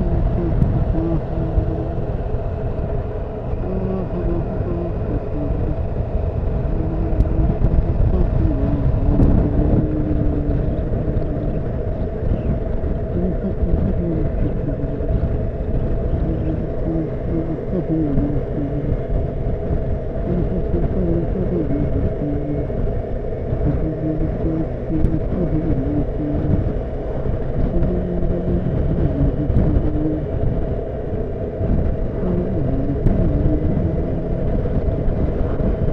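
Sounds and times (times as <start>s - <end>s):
wind rumble on microphone: 0.0s - 35.9s.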